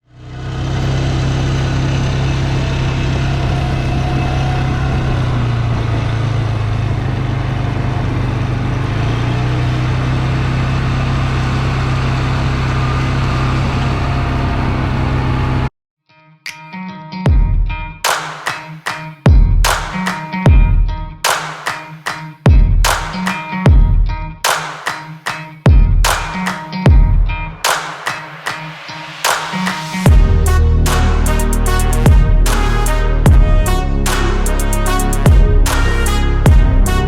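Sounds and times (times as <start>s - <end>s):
large engine droning: 0.0s - 15.7s, 29.8s - 37.0s.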